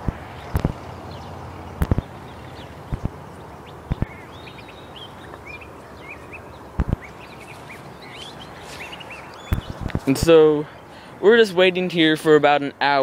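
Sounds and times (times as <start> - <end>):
steady background noise: 0.0 - 13.0
quick bird chirps: 1.8 - 10.9.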